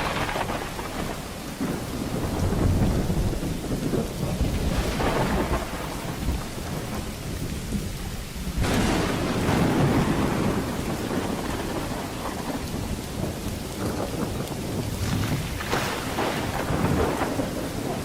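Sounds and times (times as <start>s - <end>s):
rolling thunder: 0.0s - 18.0s
steady rain: 0.0s - 18.0s.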